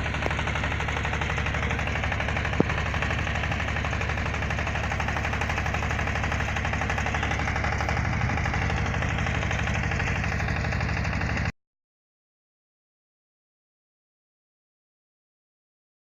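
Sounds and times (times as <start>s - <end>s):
drilling rig engine pulsing: 0.0s - 11.5s.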